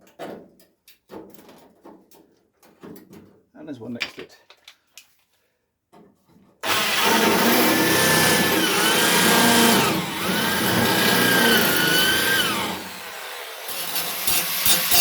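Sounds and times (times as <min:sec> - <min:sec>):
power tool on sheet metal: 0:06.6 - 0:15.0.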